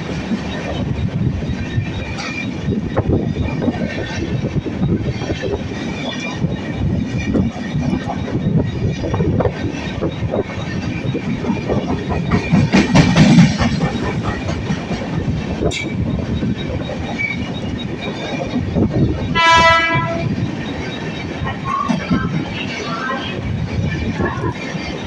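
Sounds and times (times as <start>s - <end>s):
train wheel clatter: 0.0s - 25.0s
train horn blast: 19.4s - 20.4s.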